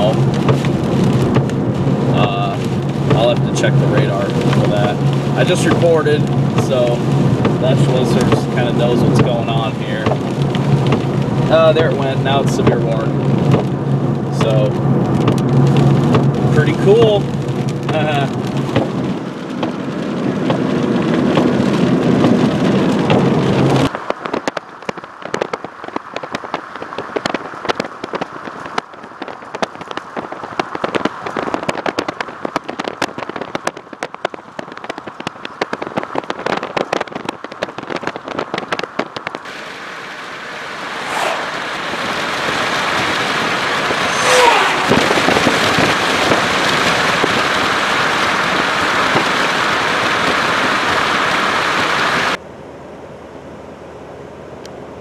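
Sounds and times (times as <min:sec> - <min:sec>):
raindrops tapping on vehicle roof: 0:00.0 - 0:40.8, 0:41.6 - 0:44.1, 0:45.0 - 0:52.4
heavy rain and wind on vehicle: 0:00.0 - 0:52.4
falling tones: 0:43.8 - 0:45.6.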